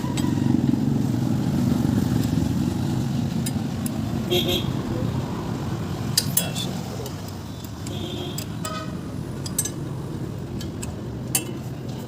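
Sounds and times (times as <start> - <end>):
engine rumbling: 0.0 - 12.0
sharp metallic clicks and knocks: 3.3 - 4.0, 6.1 - 12.0.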